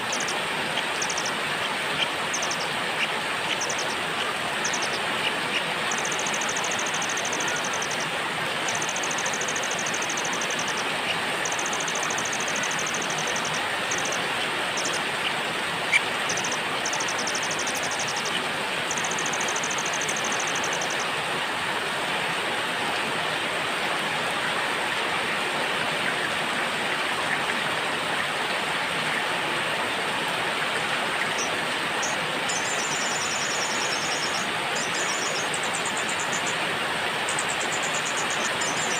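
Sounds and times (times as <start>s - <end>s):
songbird singing rapid trills: 0.0s - 1.4s, 3.5s - 15.0s, 31.3s - 36.6s
steady rain: 0.0s - 38.9s.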